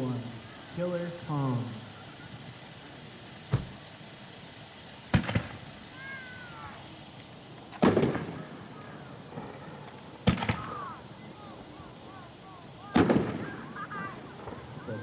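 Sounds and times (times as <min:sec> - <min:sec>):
distant fireworks booming: 0:03.4 - 0:04.0, 0:05.0 - 0:15.0.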